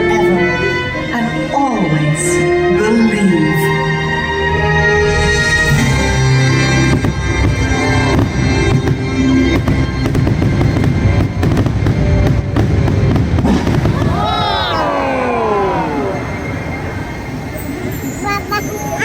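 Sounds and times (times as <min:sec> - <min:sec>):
fireworks banging and crackling: 0:07.0 - 0:19.0.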